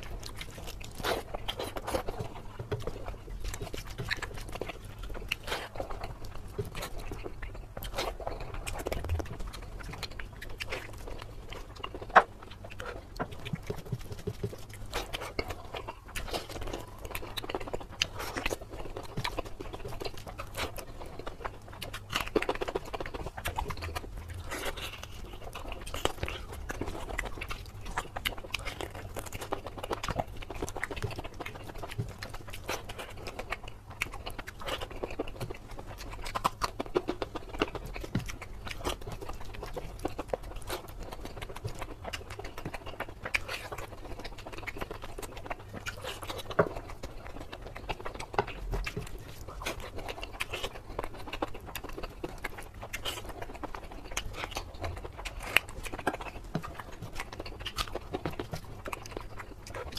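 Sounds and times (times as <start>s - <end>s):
wet chewing and lip-smacking: 0.0s - 59.9s.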